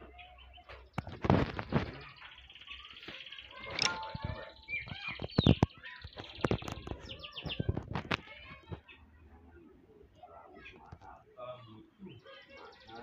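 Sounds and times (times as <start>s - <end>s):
songbirds chirping and whistling: 0.0s - 9.7s, 11.8s - 13.0s
sharp clicks: 3.7s - 4.4s.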